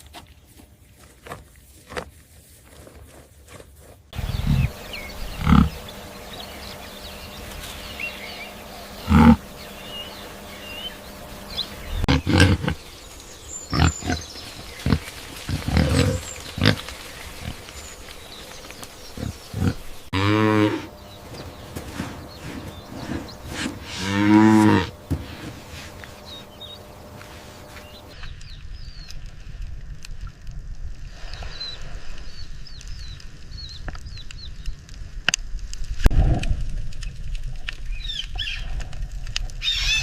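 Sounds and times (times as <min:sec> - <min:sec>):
cow mooing: 0:08.9 - 0:12.8, 0:19.6 - 0:20.9, 0:23.0 - 0:27.7.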